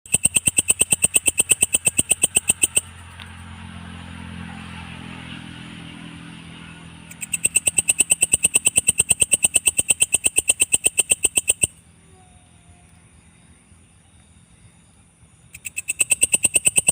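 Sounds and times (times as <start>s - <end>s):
katydid calling in pulses: 0.1s - 3.0s, 7.1s - 11.8s, 15.5s - 16.9s
low engine-like hum: 0.1s - 16.9s.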